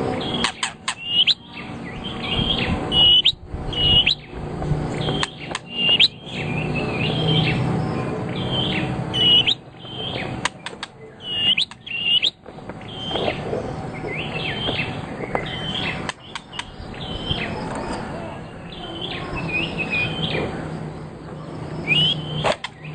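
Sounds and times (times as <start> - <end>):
songbird chirping: 0.0 - 22.9
sharp ticks: 5.0 - 6.2, 10.4 - 12.0, 16.0 - 16.8.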